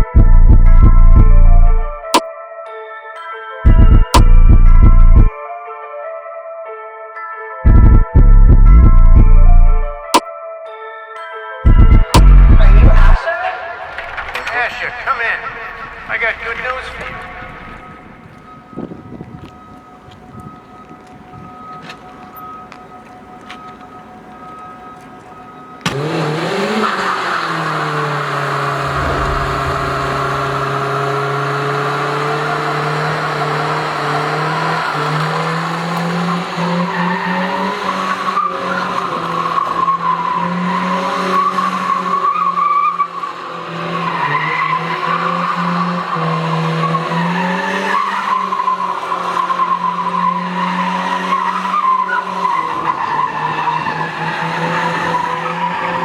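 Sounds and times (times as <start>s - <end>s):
engine at high revs: 25.8s - 39.4s.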